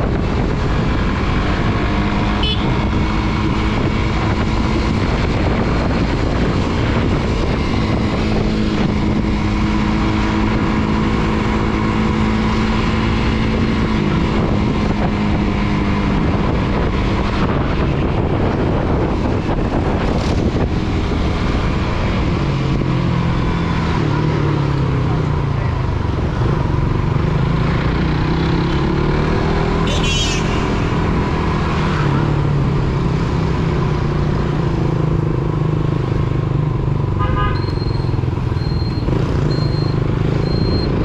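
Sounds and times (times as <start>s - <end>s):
wind buffeting microphone: 0.0s - 11.2s, 13.0s - 28.6s
motorcycle engine cruising: 0.0s - 41.0s.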